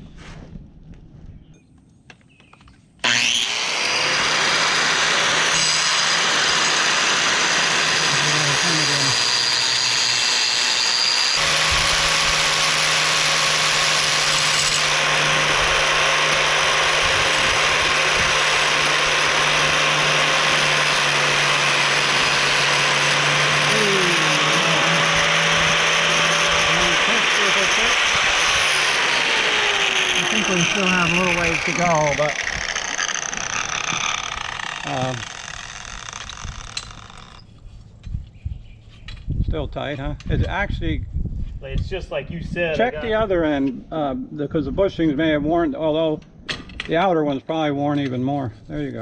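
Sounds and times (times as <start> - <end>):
lathe cutting metal: 3.0 - 37.3.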